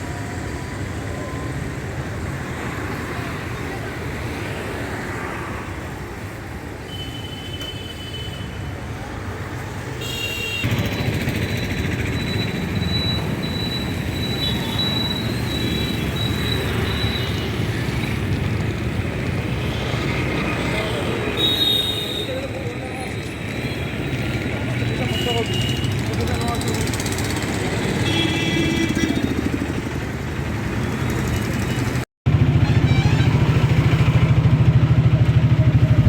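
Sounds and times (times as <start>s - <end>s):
wheels squealing on track: 10.7s - 18.0s
train running on rails: 10.7s - 20.7s.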